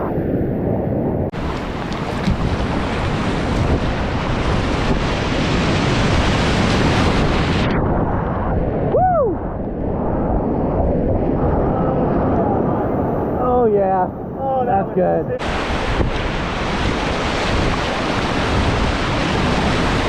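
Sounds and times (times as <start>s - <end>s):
whitewater rushing and splashing: 1.3s - 7.6s, 15.4s - 20.0s.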